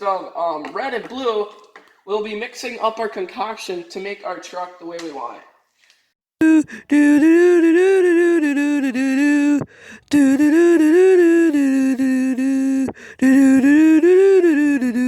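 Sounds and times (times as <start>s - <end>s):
person humming a slow tune: 6.4s - 15.0s.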